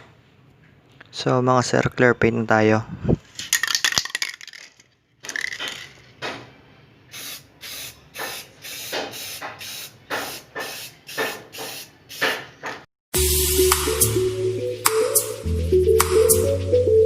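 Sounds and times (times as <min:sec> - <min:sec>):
spray gun hissing: 0:07.1 - 0:12.3.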